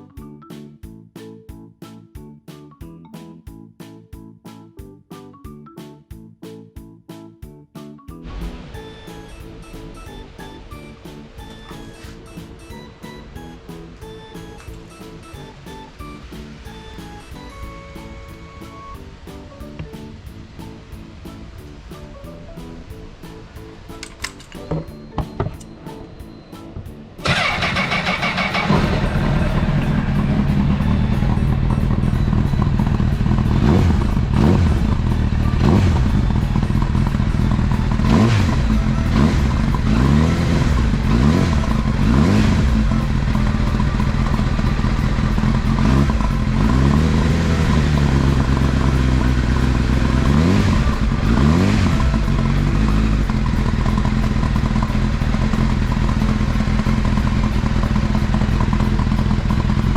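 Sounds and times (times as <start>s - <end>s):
motorcycle throttle blips: 24.1s - 59.9s
motorcycle engine idling: 27.2s - 59.9s.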